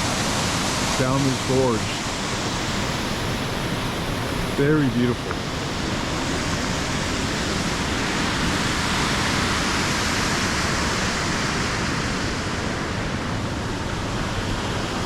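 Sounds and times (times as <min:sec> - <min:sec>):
water rushing down waterfalls: 0:00.0 - 0:15.0.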